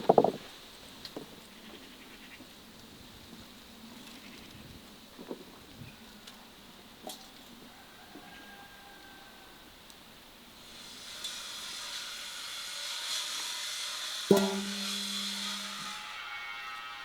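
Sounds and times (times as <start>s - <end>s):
hiss: 10.4s - 17.0s
sharp ringing knock: 14.3s - 15.9s.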